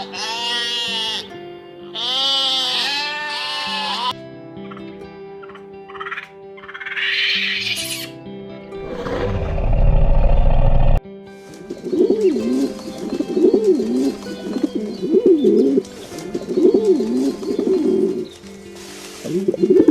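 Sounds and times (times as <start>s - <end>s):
noisy rushing sound: 8.8s - 11.0s
bird cooing: 11.8s - 18.4s, 19.3s - 19.9s.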